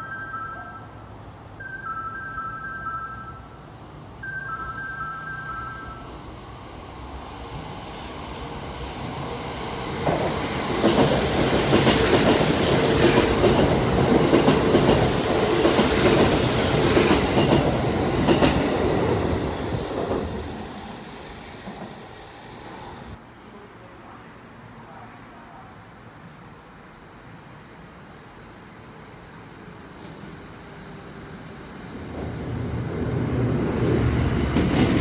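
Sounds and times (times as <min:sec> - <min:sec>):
train passing rumble: 0:00.1 - 0:35.0
two-note chime: 0:04.2 - 0:06.1
rail-joint clacks: 0:10.0 - 0:19.0.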